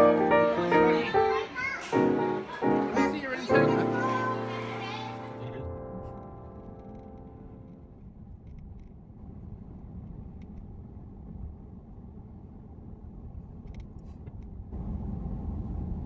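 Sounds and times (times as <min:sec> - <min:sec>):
moving car rumble: 0:07.9 - 0:16.0.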